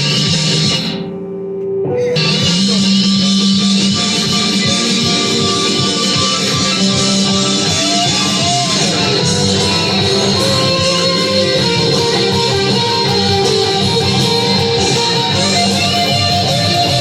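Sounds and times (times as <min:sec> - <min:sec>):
guitar note bending: 0:00.0 - 0:17.0
rock music with electric guitar: 0:00.0 - 0:17.0.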